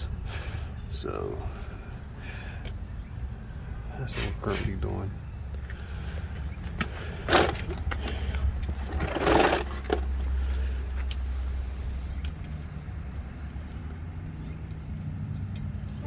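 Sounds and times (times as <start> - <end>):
engine hum: 0.0 - 16.0
scraping or rustling bursts: 6.7 - 10.4.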